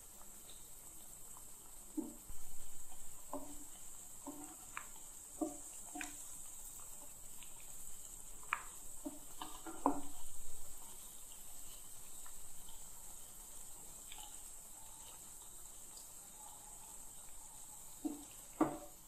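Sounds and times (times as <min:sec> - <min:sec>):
fritters sizzling in ghee: 0:00.0 - 0:19.0
wooden spatula scraping pan: 0:02.0 - 0:08.2, 0:09.0 - 0:12.2.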